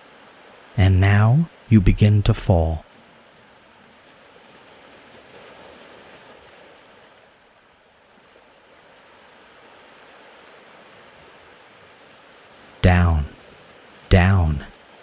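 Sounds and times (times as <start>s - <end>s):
faint ocean surf: 0.0s - 7.4s.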